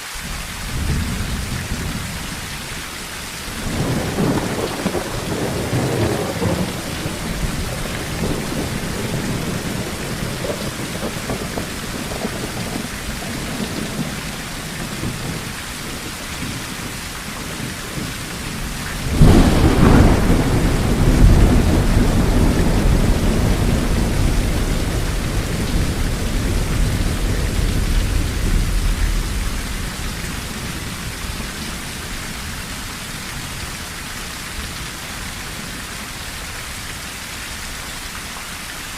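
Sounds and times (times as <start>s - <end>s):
rain drumming on a tin roof: 0.0s - 38.9s
thunder rumbling: 0.2s - 33.6s
thunderclap: 0.3s - 2.7s, 3.6s - 16.6s, 17.3s - 31.7s.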